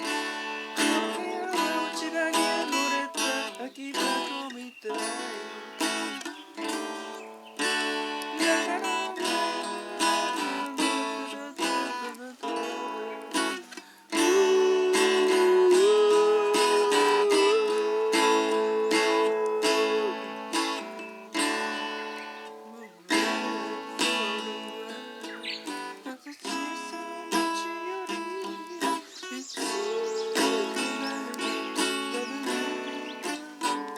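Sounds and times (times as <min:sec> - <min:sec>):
acoustic guitar strumming: 0:00.0 - 0:33.9
long held melody note: 0:14.2 - 0:21.0.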